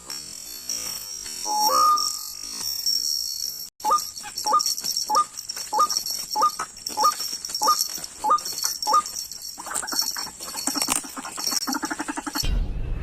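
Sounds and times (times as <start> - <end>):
jumble of bird calls: 3.8 - 12.4.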